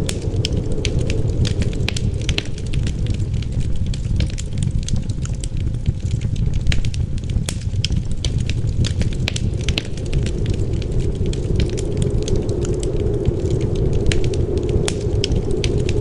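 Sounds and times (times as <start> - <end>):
fire popping and snapping: 0.0 - 16.0
low rumble of wind: 0.0 - 16.0
wood fire crackling: 0.0 - 16.0.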